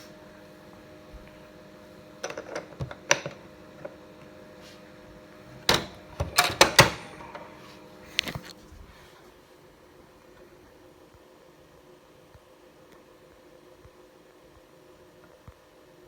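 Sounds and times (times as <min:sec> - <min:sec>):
tumble dryer clicks and knocks: 0:05.6 - 0:07.6.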